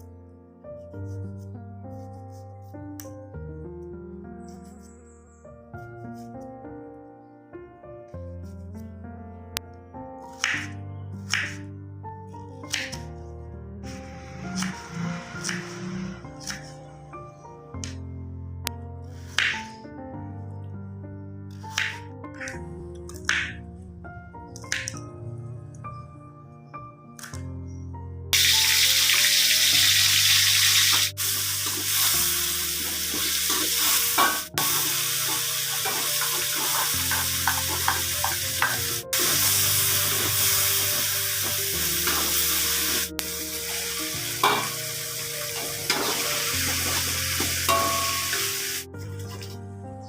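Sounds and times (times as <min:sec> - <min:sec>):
soft background music: 0:00.0 - 0:50.0
food sizzling in a hot pan: 0:28.4 - 0:48.9.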